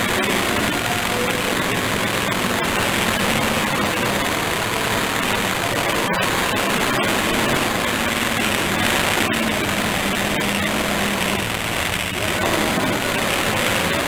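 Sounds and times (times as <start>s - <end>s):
car engines roaring: 0.0s - 14.0s.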